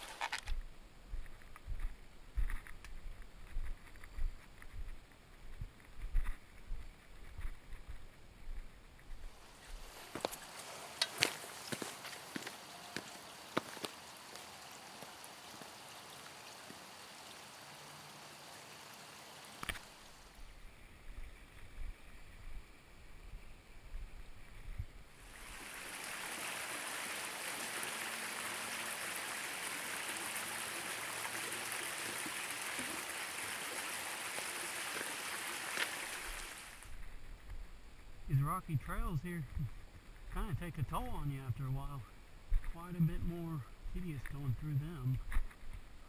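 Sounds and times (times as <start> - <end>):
running water rushing: 0.0 - 0.4, 9.3 - 20.5, 25.2 - 37.1
faint hiss: 4.0 - 46.0.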